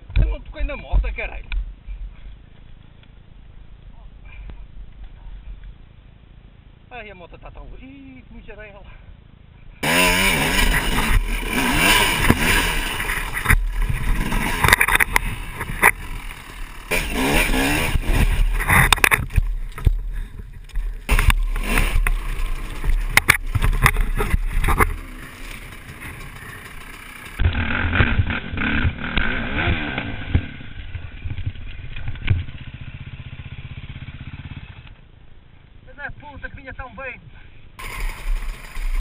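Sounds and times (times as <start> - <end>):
dirt bike engines revving: 9.8 - 35.0, 37.8 - 39.0
knocks and clatter: 17.9 - 29.0.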